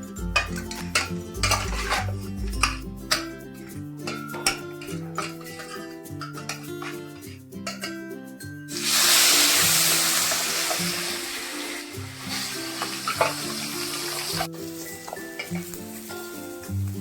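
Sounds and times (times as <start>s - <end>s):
food sizzling in hot oil: 8.7s - 17.0s.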